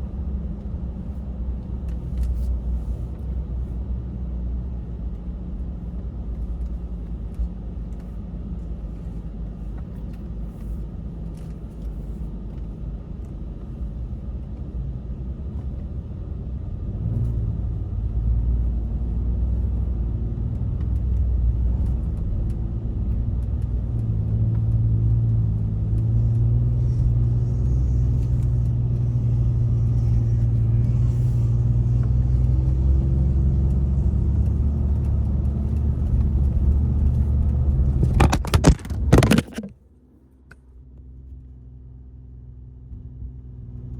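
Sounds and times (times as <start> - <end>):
truck engine running: 15.6 - 39.7.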